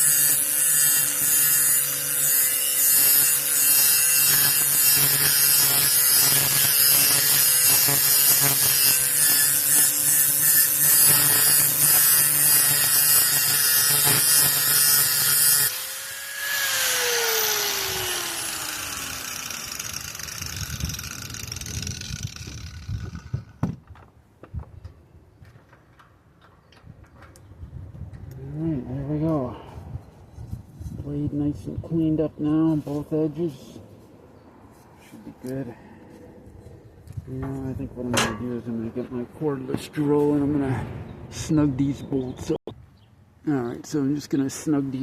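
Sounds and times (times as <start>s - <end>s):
electric grinder grinding steel: 0.0s - 23.4s.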